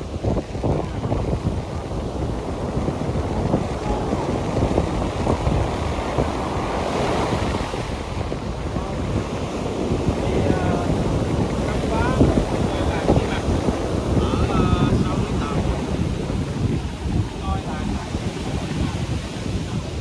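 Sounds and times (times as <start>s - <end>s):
rushing water: 0.0s - 20.0s
wind buffeting microphone: 0.0s - 20.0s.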